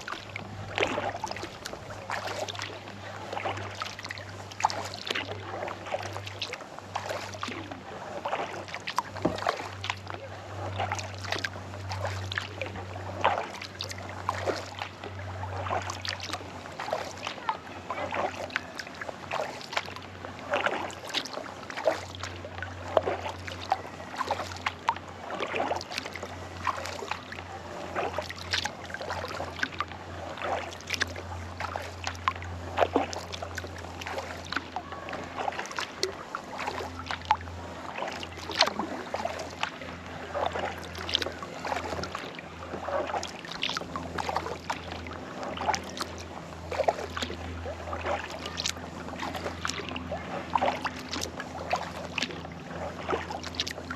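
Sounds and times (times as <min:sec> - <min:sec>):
paddle splashing in water: 0:00.0 - 0:53.9.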